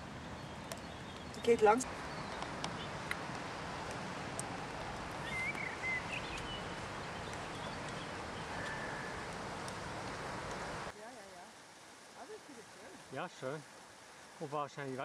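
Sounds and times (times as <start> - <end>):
birds chirping: 0.0 - 10.9
steady background hiss: 0.0 - 15.0
whistled bird note: 5.2 - 6.6.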